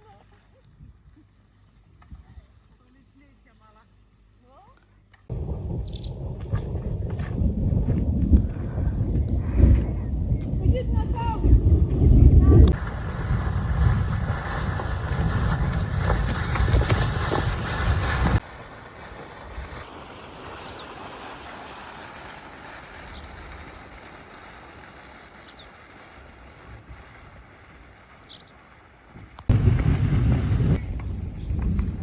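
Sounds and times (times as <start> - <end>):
wind buffeting microphone: 5.3 - 18.4, 29.2 - 32.0
steady hiss: 12.7 - 32.0.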